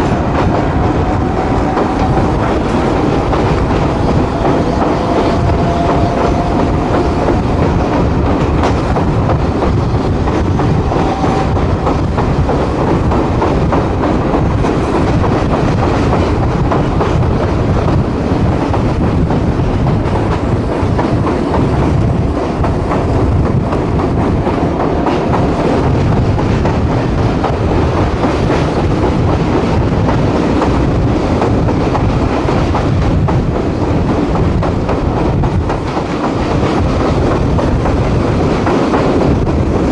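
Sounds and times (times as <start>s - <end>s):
railcar wheels rumbling on rails: 0.0s - 39.9s
track clickety-clack: 0.0s - 39.9s.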